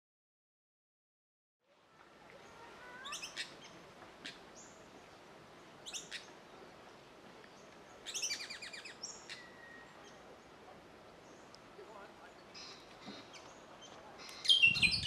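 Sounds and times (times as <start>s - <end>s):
small birds trilling: 2.4s - 6.8s, 7.5s - 10.6s, 12.3s - 15.0s
thin held bird whistle: 14.4s - 15.0s.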